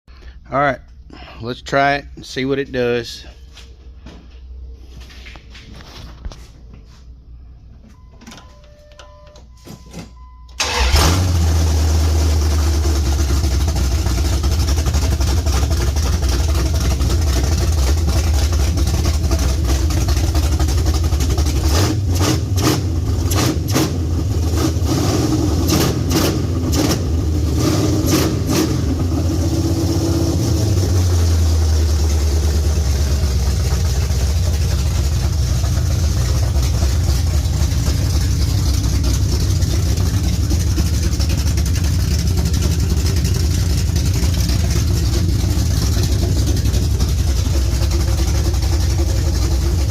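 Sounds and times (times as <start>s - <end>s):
engine starting and running loud: 10.6s - 49.9s.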